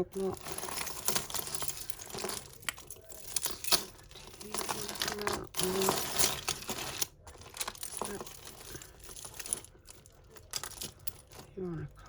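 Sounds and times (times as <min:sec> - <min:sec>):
jewellery clicking and rattling: 0:00.0 - 0:12.0.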